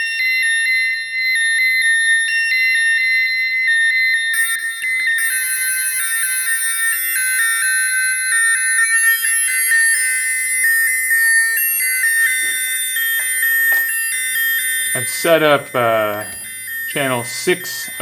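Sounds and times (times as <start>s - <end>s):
synthesized bell tones: 4.4s - 18.0s
brighter high bell layer: 8.6s - 18.0s.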